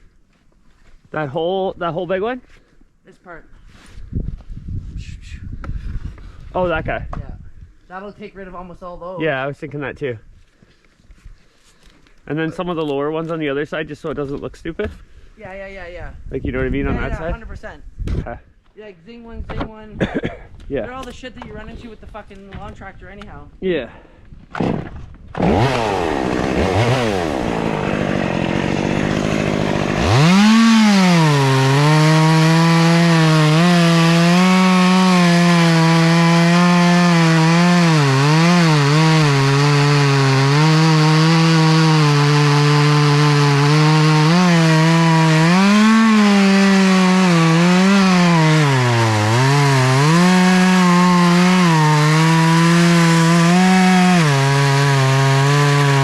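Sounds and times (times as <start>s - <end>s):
chainsaw cutting a branch: 24.6s - 56.0s.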